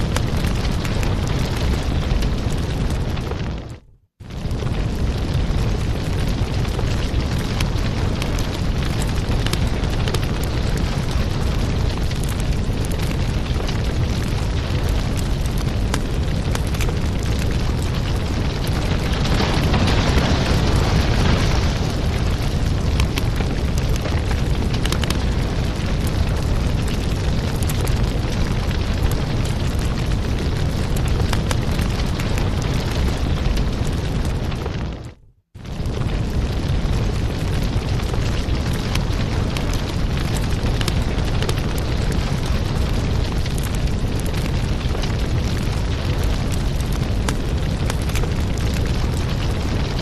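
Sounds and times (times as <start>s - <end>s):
fire crackling and popping: 0.0s - 50.0s.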